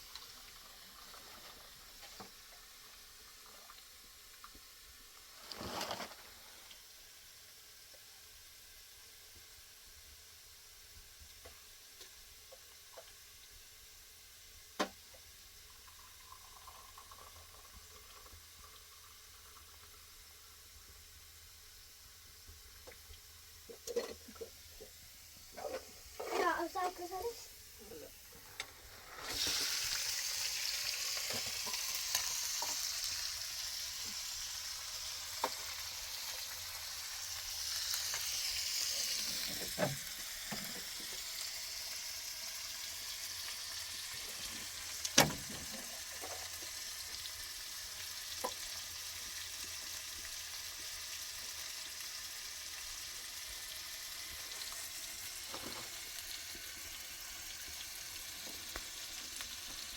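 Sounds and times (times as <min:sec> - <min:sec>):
food sizzling in hot oil: 0:00.0 - 0:59.9
oil popping: 0:22.8 - 0:24.6, 0:29.2 - 0:34.4.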